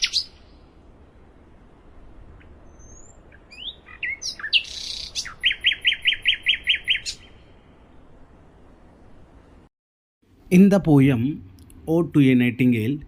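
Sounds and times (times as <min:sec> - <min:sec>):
nightingale singing: 0:00.0 - 0:00.8, 0:02.3 - 0:08.1.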